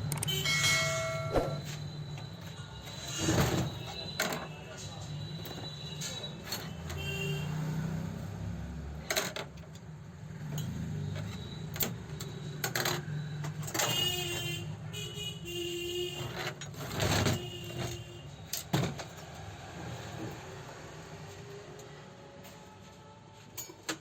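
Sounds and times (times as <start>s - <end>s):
sharp metallic clicks and knocks: 0.0s - 1.6s.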